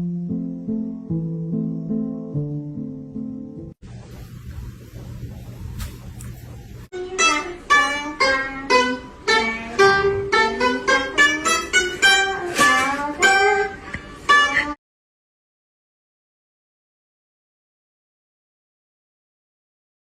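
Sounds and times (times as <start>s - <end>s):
low steady hum: 3.6s - 11.6s
plucked string instrument melody: 6.9s - 14.8s.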